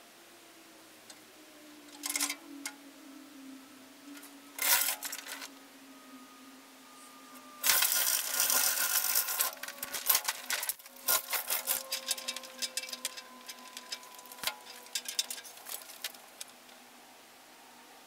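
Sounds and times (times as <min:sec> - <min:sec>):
faint steady hum: 0:00.0 - 0:18.0
metal chain scraping and rattling: 0:01.9 - 0:02.4, 0:04.2 - 0:05.5, 0:07.6 - 0:16.5
fast clicks and rattles: 0:07.6 - 0:16.5.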